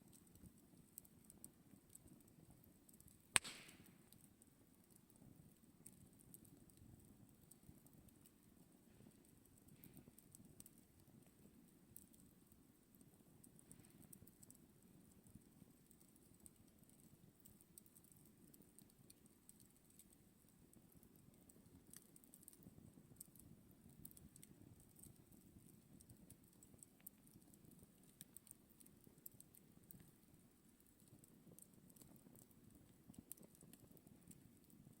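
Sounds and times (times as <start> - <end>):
campfire crackling: 0.0 - 35.0.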